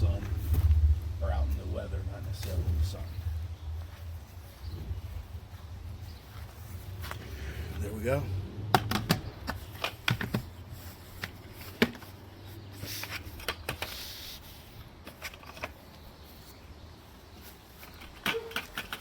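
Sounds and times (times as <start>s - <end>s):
faint low rumble: 0.0s - 8.6s
sharp clicks and knocks: 8.7s - 10.5s.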